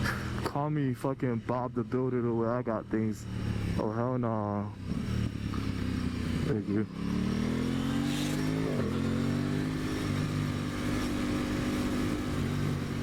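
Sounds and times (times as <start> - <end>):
motorcycle engine accelerating: 2.8 - 13.0.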